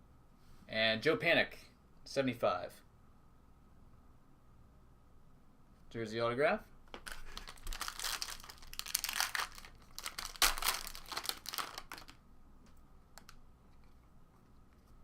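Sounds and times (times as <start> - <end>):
plastic wrapping crinkling: 6.9 - 12.2.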